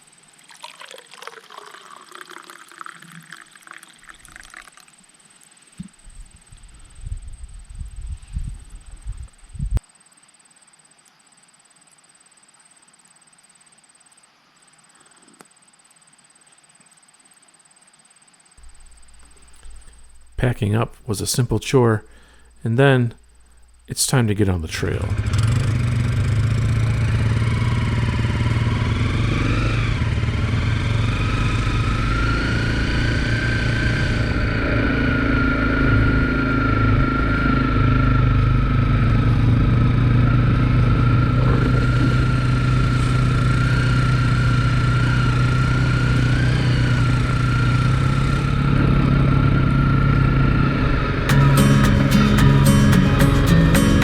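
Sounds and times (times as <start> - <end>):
motorcycle engine running: 18.6 - 20.5, 25.0 - 54.0
high whine: 18.6 - 54.0.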